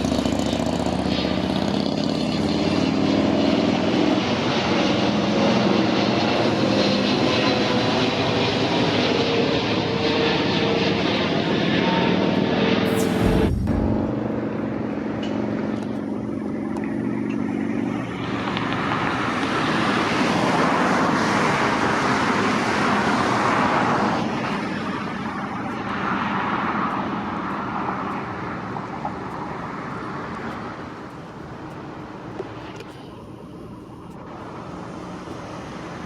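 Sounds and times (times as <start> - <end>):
road traffic passing: 0.0 - 10.0, 12.8 - 36.0
low engine hum: 12.9 - 19.4.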